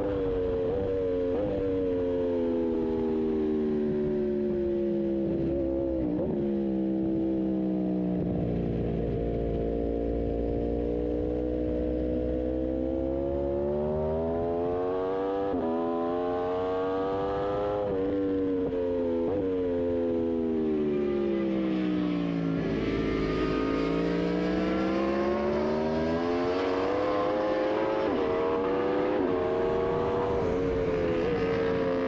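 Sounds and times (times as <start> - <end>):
motorcycle engine accelerating: 0.0 - 32.0
low wind rumble: 28.0 - 32.0.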